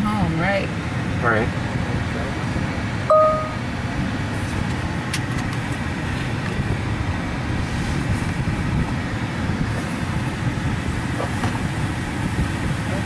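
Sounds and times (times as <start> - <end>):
short beep: 3.1 - 3.6
car wash spraying water: 3.7 - 13.0.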